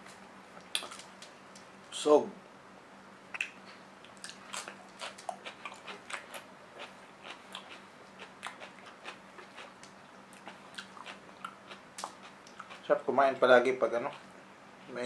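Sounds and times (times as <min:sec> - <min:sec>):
man chewing crisp crunches: 0:00.6 - 0:01.2, 0:03.3 - 0:12.9.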